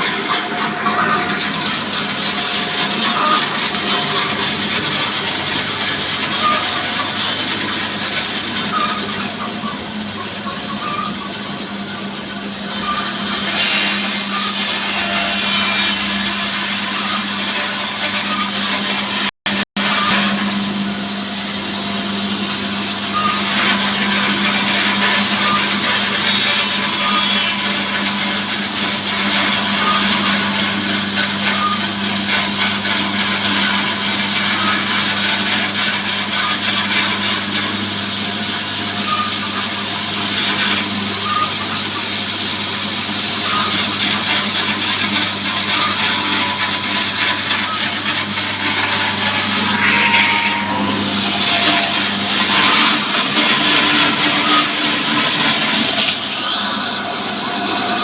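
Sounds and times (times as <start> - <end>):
engine-driven sawmill cutting wood: 0.0 - 58.0.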